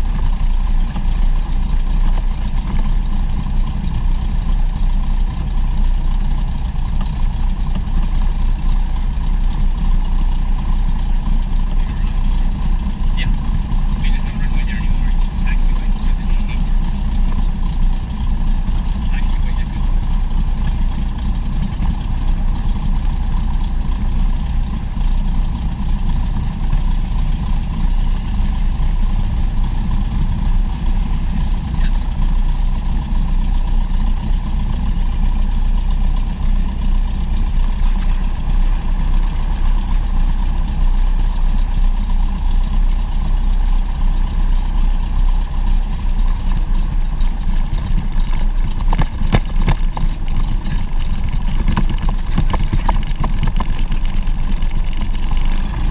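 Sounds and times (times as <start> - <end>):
propeller aircraft engine drone: 0.0 - 55.9.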